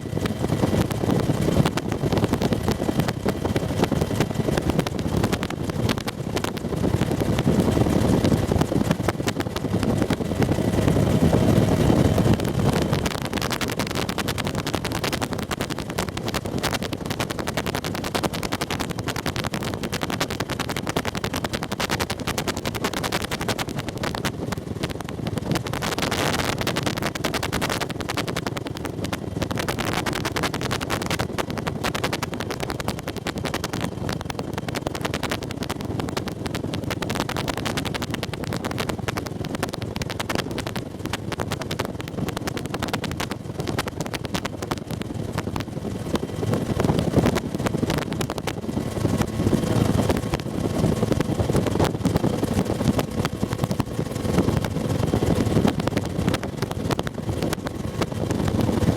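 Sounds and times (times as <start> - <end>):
helicopter turbine and rotor noise: 0.0 - 58.9.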